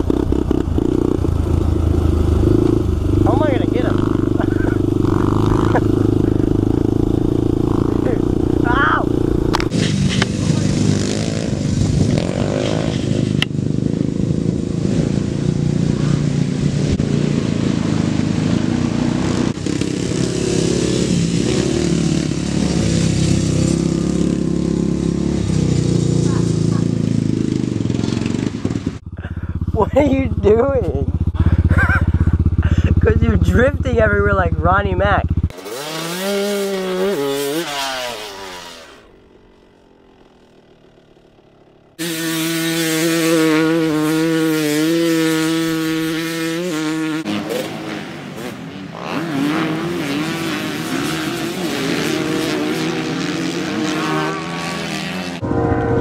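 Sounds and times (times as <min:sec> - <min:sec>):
small motorbike engine revving: 0:00.0 - 0:30.1, 0:35.2 - 0:41.1, 0:41.9 - 0:55.5
small engine revving high: 0:35.5 - 0:39.3, 0:42.0 - 0:56.0.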